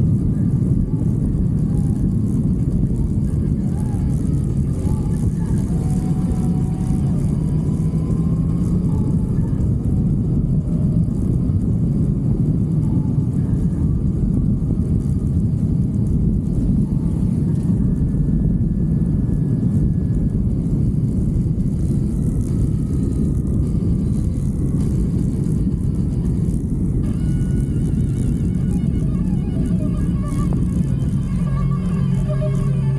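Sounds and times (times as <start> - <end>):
wind and road noise: 0.0 - 32.9
motorcycle engine: 21.9 - 32.9.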